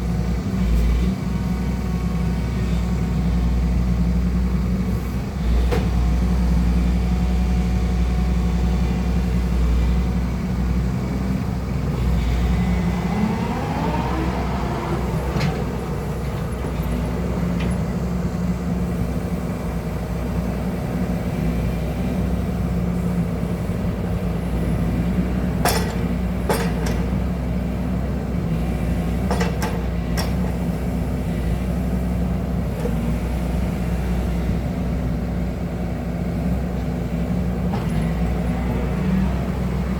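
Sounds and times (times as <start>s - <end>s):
excavator diesel engine running: 0.0s - 39.9s
rising and falling whine: 12.5s - 15.4s.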